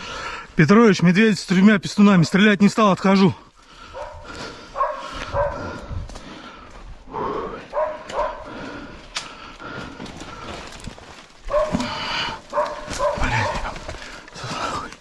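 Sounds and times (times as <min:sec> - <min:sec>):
rustling: 0:09.7 - 0:15.0.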